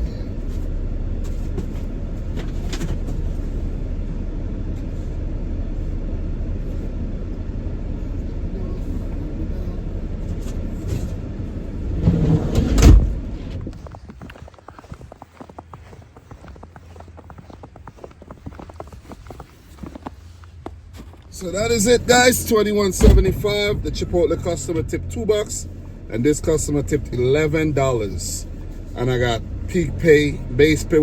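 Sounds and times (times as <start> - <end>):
engine and road noise in cabin: 0.0 - 14.5, 15.2 - 31.0
door thump: 23.0 - 23.4.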